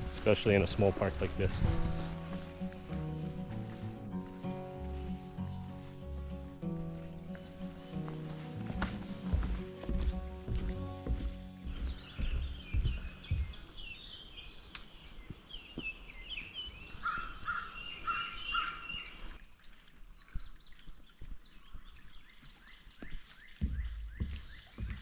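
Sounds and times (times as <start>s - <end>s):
birds singing and chirping: 0.0s - 9.6s, 10.8s - 19.4s
repeated lower bird notes: 1.5s - 19.3s.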